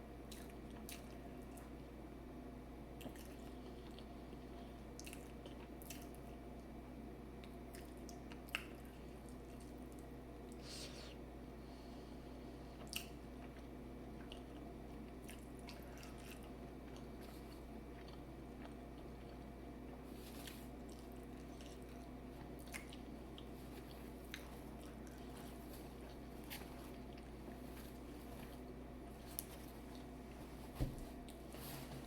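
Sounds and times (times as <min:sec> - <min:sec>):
steady low hum: 0:00.0 - 0:32.0
person chewing food: 0:03.0 - 0:06.4, 0:07.4 - 0:10.6, 0:12.6 - 0:30.4.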